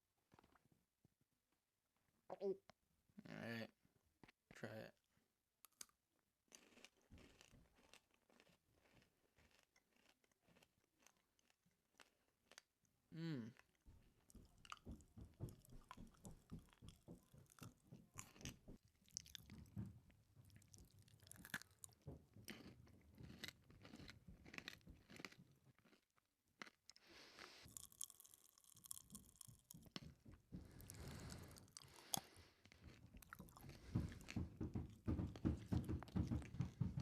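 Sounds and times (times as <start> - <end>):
close-up chewing: 6.5 - 37.0
popping candy crackles: 27.6 - 33.8.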